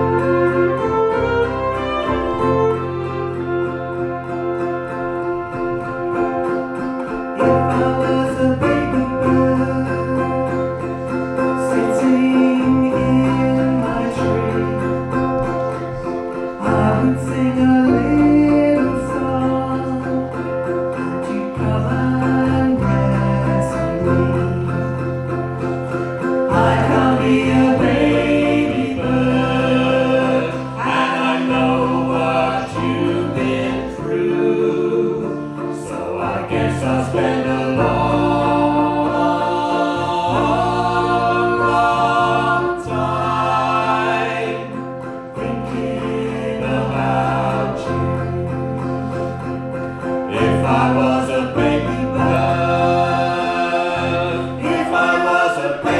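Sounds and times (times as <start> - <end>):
guitar: 0.0 - 55.9
voices singing in harmony: 0.0 - 55.9.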